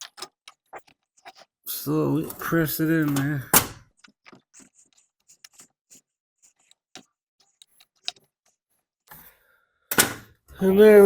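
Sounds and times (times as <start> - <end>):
small clicks and ticks: 0.0 - 1.6, 3.9 - 8.8.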